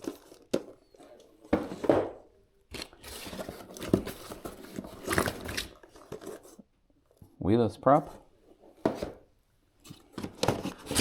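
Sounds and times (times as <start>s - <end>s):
packaging crinkling and tearing: 2.7s - 6.6s, 10.7s - 11.0s.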